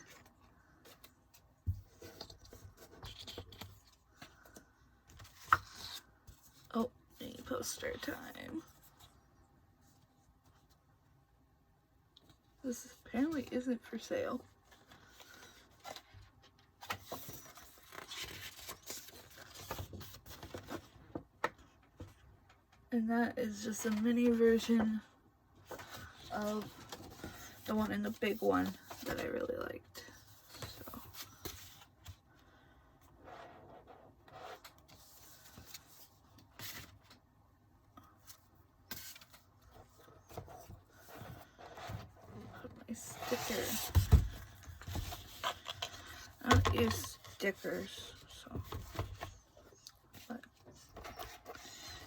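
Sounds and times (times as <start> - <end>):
paper rustling and crinkling: 14.6 - 21.2.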